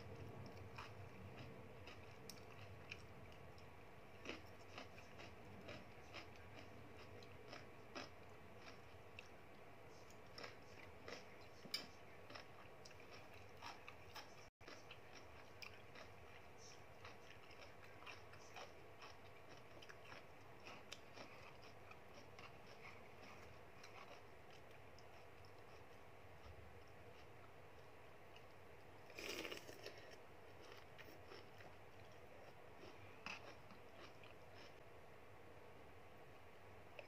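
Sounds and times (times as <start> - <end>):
person chewing: 0.1 - 27.6, 29.1 - 34.8.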